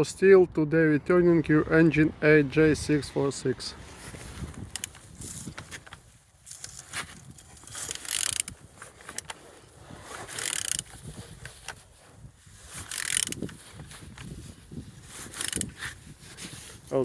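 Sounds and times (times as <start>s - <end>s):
engine turned over by hand: 3.9s - 11.8s, 12.5s - 16.8s.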